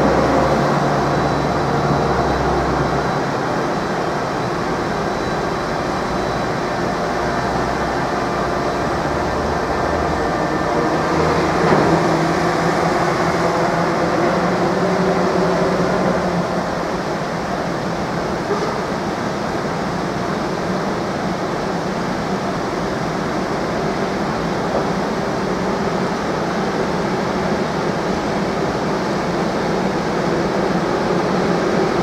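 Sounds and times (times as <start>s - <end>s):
locomotive low hum: 0.0s - 19.6s.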